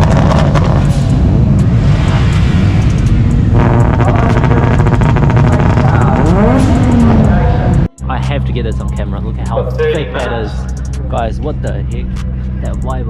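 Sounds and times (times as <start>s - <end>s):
car engine running hard: 0.0s - 7.9s.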